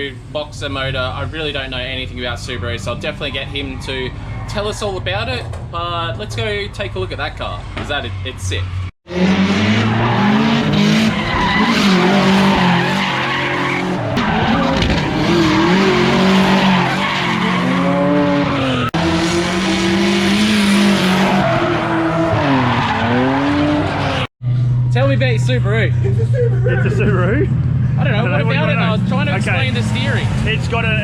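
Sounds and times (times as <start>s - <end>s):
tyres skidding: 0.8s - 31.0s
car engine at high revs: 8.8s - 24.3s.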